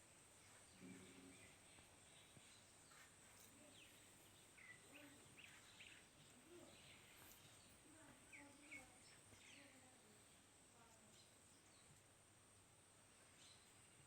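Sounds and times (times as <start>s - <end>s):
bird chirps: 0.5s - 9.9s.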